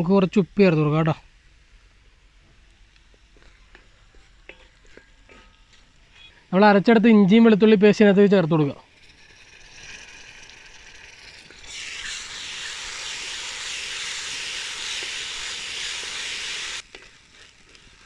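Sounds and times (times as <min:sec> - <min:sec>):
onions sizzling in oil: 0:09.0 - 0:18.0.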